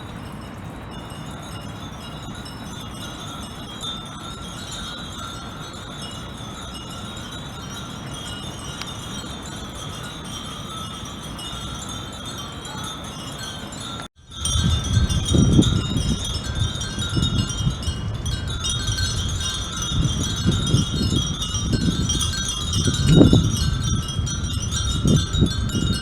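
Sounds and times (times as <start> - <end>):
wind bells tinkling: 0.0 - 26.0
wind buffeting microphone: 13.8 - 26.0.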